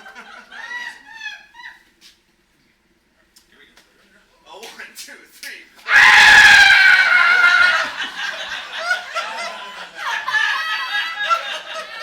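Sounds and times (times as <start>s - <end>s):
audience laughter: 0.0s - 1.6s, 7.2s - 12.0s.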